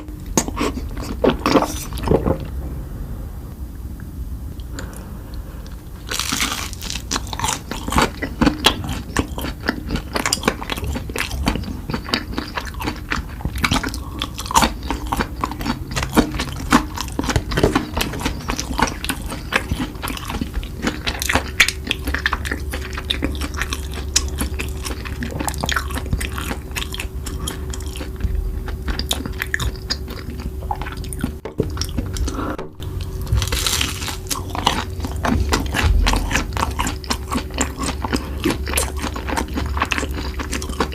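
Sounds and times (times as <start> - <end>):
chewing noodles: 0.0 - 2.5, 5.6 - 40.9.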